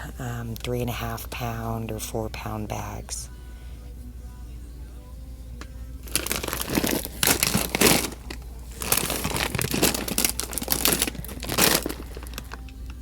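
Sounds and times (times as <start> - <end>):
dry food bag crinkling: 6.0 - 12.8.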